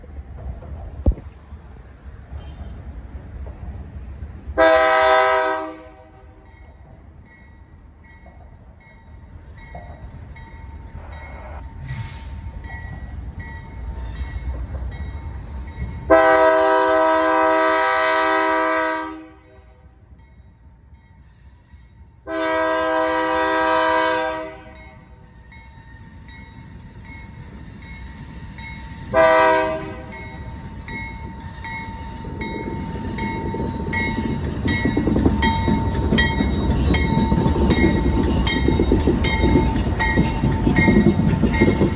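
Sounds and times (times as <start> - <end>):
freight train rumble: 0.0 - 41.9
locomotive air horn blasts: 4.6 - 6.4, 16.1 - 19.8, 22.3 - 24.9, 29.1 - 30.2.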